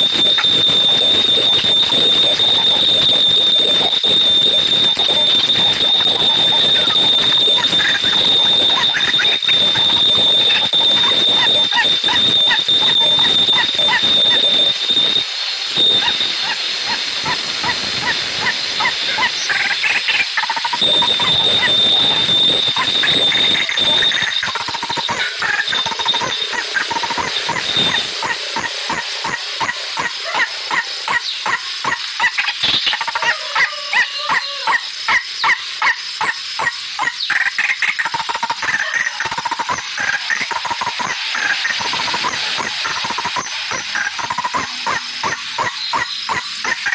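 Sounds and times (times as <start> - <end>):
high-pitched whine: 0.0 - 46.9
bird chirping: 0.3 - 33.4.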